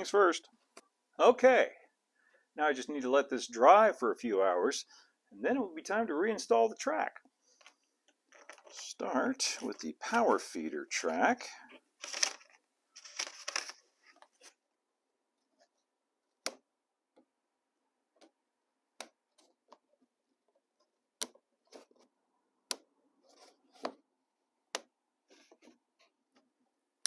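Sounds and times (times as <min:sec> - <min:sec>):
plastic rubbing and scraping: 0:07.5 - 0:10.2, 0:19.3 - 0:22.2, 0:23.2 - 0:24.1, 0:25.2 - 0:26.5.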